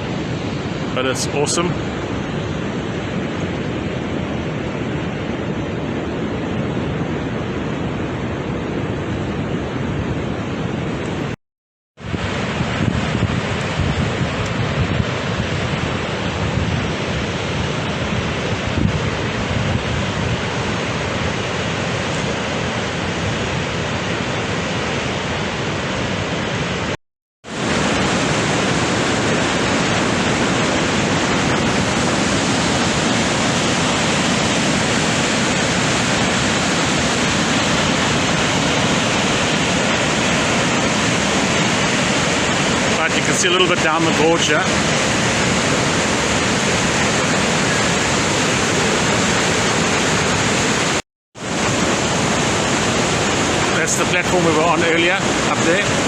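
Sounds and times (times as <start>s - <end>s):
waterfall rushing: 0.0s - 4.6s, 12.0s - 56.0s
wind on microphone: 12.0s - 26.9s, 27.5s - 43.4s.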